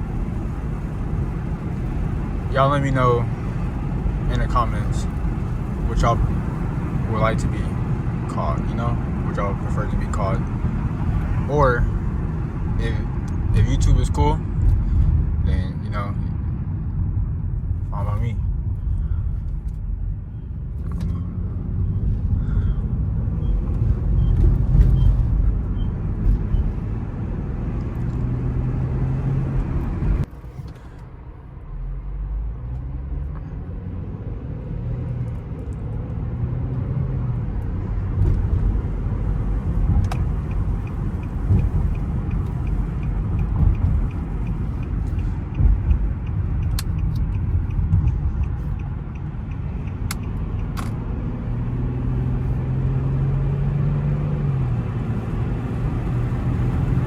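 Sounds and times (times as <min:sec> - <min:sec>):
car engine and road rumble: 0:00.0 - 0:57.0
even ticks: 0:39.9 - 0:51.0
sharp clicks: 0:39.9 - 0:51.0.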